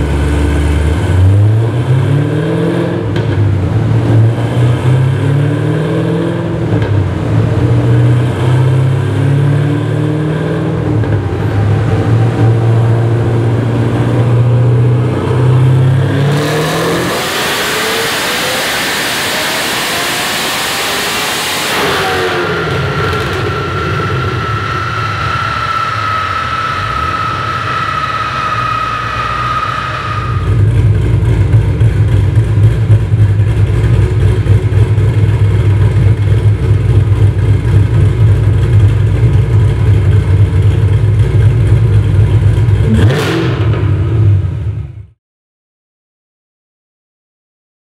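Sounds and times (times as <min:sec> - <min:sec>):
car engine rumbling on dyno: 0:00.0 - 0:45.2
high whine dropping in pitch: 0:09.8 - 0:44.8.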